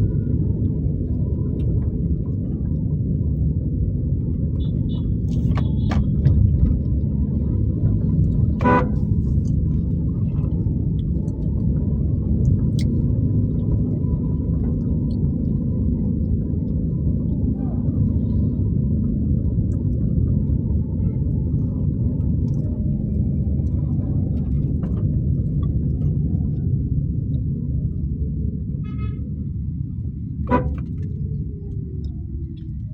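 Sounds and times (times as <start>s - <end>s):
car driving low rumble: 0.0s - 32.9s
vehicle horn toot: 4.6s - 6.1s, 8.6s - 9.1s, 30.5s - 30.9s.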